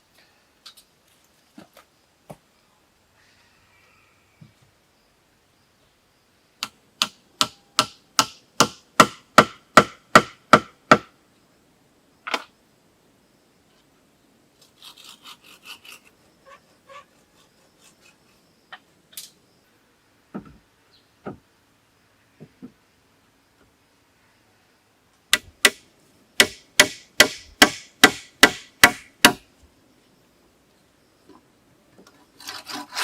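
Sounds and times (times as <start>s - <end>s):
sharp blows on wood ringing: 6.6s - 11.1s, 25.3s - 29.4s.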